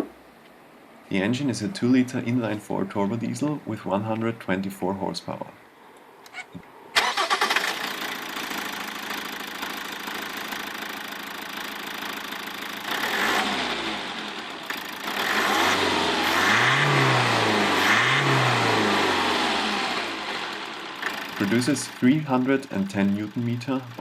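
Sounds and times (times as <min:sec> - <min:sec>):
diesel engine starting and idling: 0:07.0 - 0:24.0
engine revving: 0:12.0 - 0:24.0.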